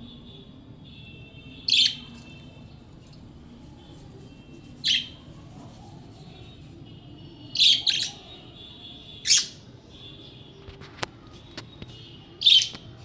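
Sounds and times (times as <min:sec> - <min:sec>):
budgerigar harsh calls: 0:04.8 - 0:05.2, 0:07.6 - 0:08.2.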